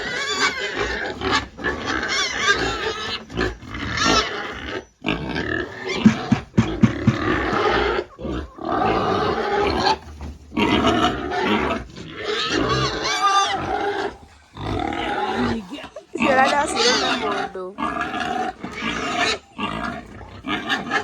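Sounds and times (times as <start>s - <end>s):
pigs calling: 0.0s - 21.0s
sharp knocks: 6.0s - 7.5s.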